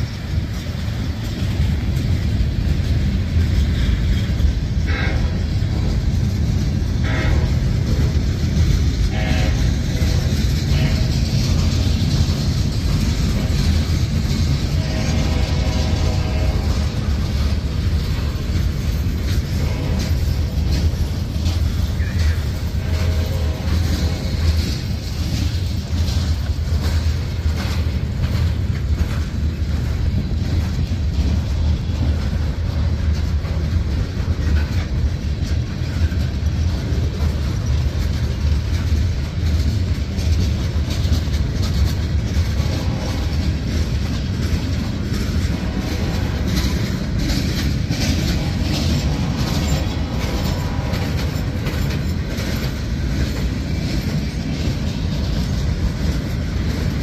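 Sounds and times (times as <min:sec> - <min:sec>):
steel wheels rumbling on rail: 0:00.0 - 0:57.0
wheels clicking over rail joints: 0:00.0 - 0:57.0.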